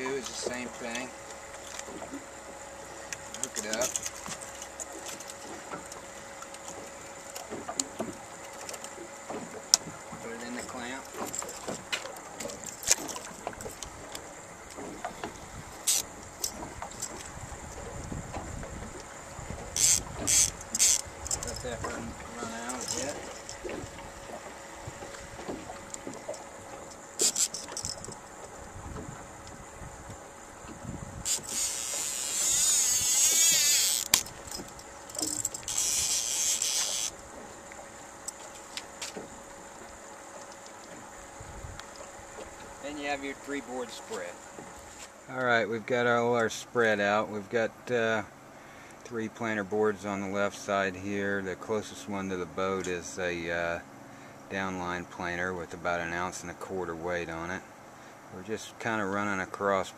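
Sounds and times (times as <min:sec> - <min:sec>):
faint steady hum: 0:00.0 - 0:59.9
wind: 0:00.0 - 0:59.9
fishing reel buzzing: 0:00.1 - 0:29.6, 0:30.6 - 0:37.4
sharp click: 0:31.3 - 0:37.2.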